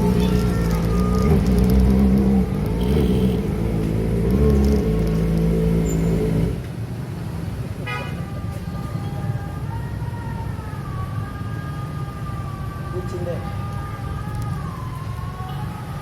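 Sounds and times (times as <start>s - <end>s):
motorcycle engine running: 0.0s - 6.6s
short horn beep: 2.8s - 3.5s.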